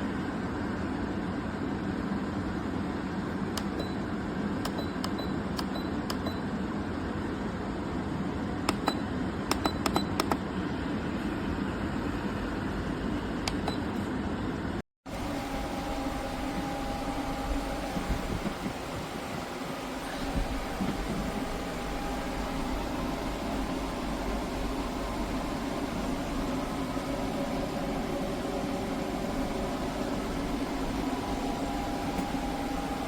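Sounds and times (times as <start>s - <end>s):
air conditioner fan running: 0.0s - 33.0s
sharp clicks: 4.6s - 6.3s, 8.7s - 10.4s
steady whine: 15.1s - 33.0s.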